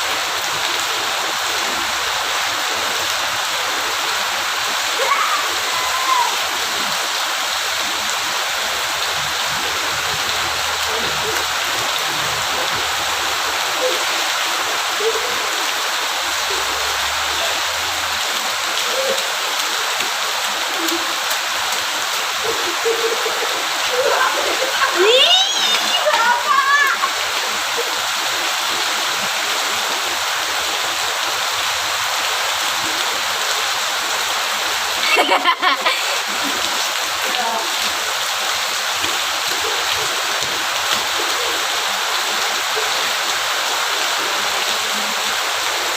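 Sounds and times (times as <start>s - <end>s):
heavy rain falling: 0.0s - 45.9s
person speaking: 22.4s - 27.1s.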